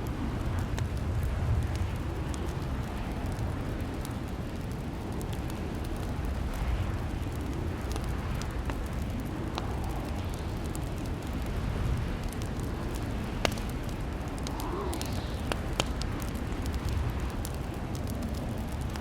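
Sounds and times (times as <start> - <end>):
fire crackling in fireplace: 0.0 - 19.0.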